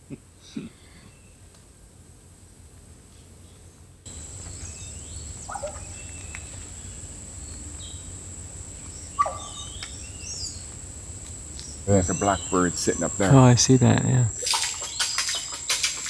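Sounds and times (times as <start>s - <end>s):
high insect drone: 0.0s - 16.0s
blackbird gurgling calls: 5.4s - 7.0s, 9.0s - 10.5s, 11.8s - 16.0s.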